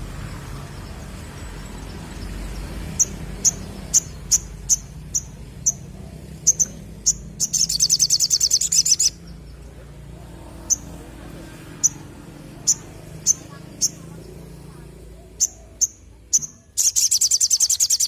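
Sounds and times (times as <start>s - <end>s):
bird chips and trill: 0.8s - 9.4s, 11.8s - 14.4s, 15.3s - 18.0s.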